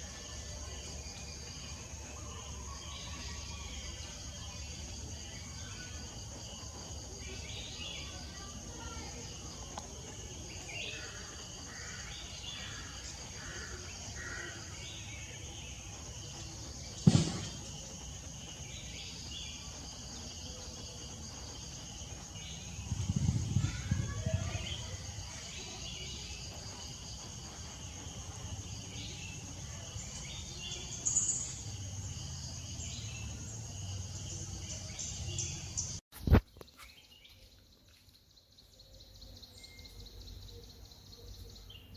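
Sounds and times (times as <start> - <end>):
sharp knock: 17.0 - 17.7.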